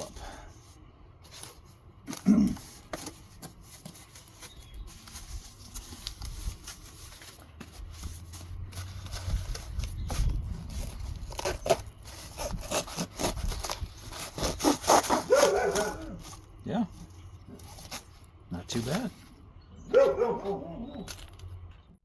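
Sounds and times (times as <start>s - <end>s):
knife sawing through cardboard: 6.8s - 16.4s.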